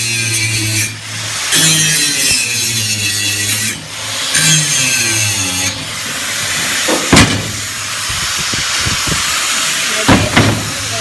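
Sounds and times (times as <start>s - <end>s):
angle grinder grinding steel: 0.0s - 11.0s
loud knocks: 6.9s - 7.6s, 10.1s - 10.7s.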